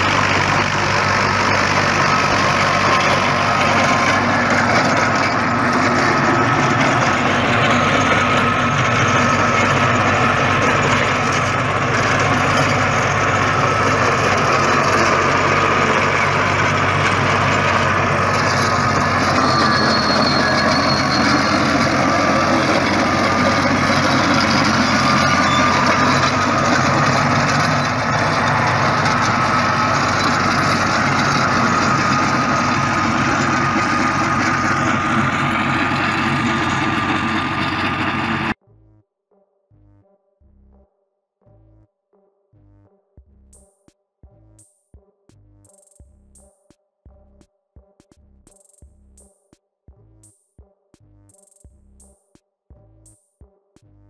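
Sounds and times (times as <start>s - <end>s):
tractor diesel engine running: 0.0s - 38.6s.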